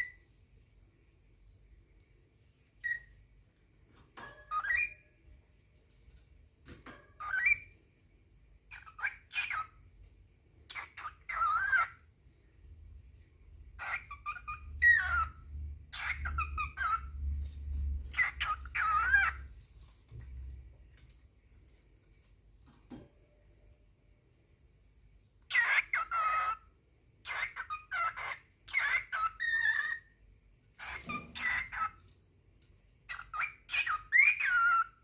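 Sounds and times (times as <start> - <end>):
cockatiel whistling and calling: 2.8 - 3.2, 4.4 - 5.1, 7.2 - 7.7, 8.7 - 9.8, 10.7 - 12.0, 13.8 - 17.2, 18.1 - 19.5, 25.5 - 26.6, 27.2 - 30.1, 30.8 - 32.0, 33.1 - 35.0.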